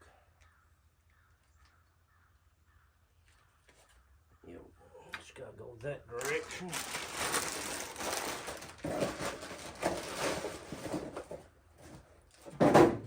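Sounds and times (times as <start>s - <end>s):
small parts rustling and clicking: 6.2s - 11.4s.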